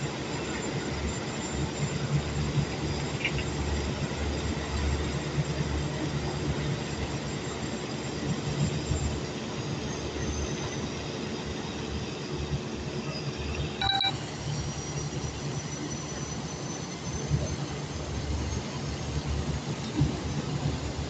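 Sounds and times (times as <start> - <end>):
short high beep: 13.8 - 14.2.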